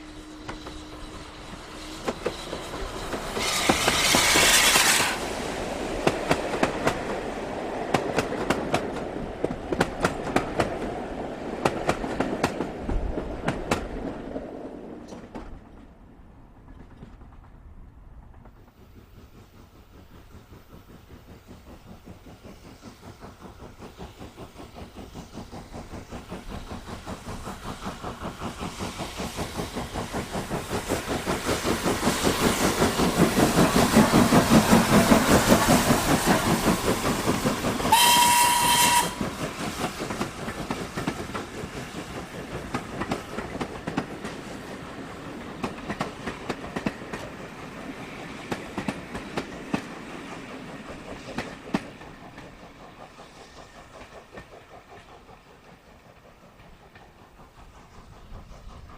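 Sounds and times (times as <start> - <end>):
train whistle blast: 0.0 - 5.2, 37.8 - 39.4
steam locomotive exhaust beats: 0.0 - 15.7, 16.4 - 58.9.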